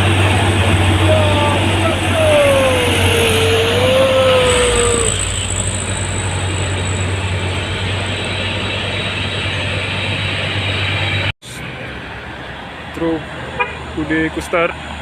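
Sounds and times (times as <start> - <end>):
gliding whine: 0.0 - 11.3
truck engine drone: 0.0 - 13.5.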